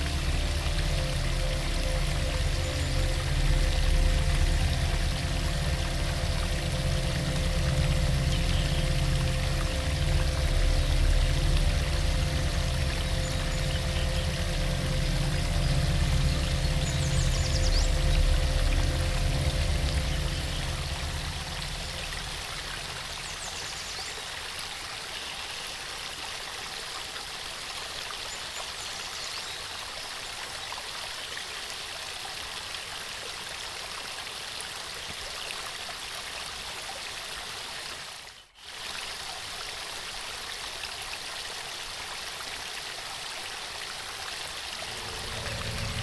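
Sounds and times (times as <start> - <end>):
waterfall rushing: 0.0 - 24.2, 44.6 - 46.0.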